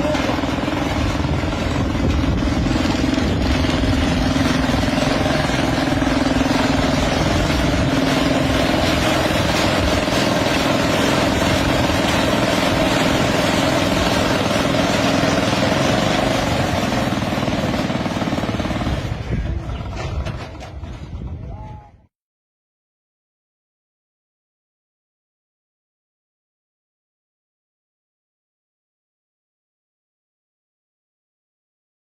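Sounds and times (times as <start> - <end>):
helicopter engine drone: 0.0 - 21.0.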